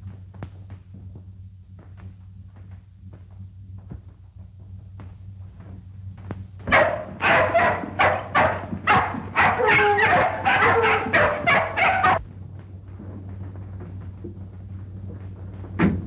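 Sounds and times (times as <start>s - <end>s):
dog barking and yelping: 6.7s - 12.2s.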